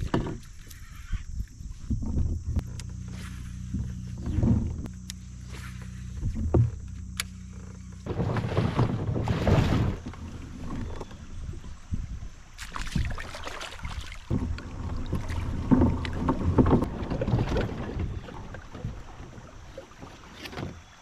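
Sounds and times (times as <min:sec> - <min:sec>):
kayak splashing and knocking: 0:00.0 - 0:00.8, 0:01.4 - 0:21.0
wind buffeting microphone: 0:08.2 - 0:13.3.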